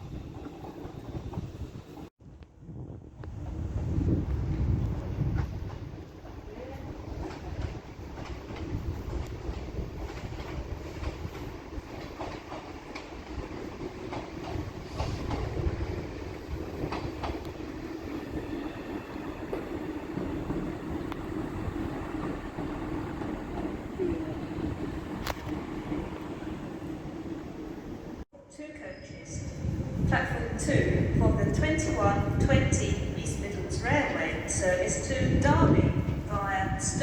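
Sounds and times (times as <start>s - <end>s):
train rumble and hum: 0.0s - 28.3s, 29.3s - 37.0s
train wheels clicking over joints: 4.8s - 28.2s.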